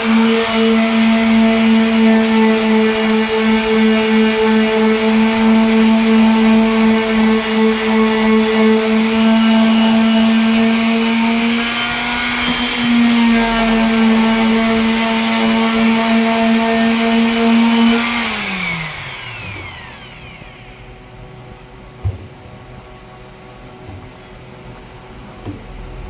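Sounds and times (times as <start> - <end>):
sander motor running: 0.0 - 22.3
short knock: 22.0 - 22.5.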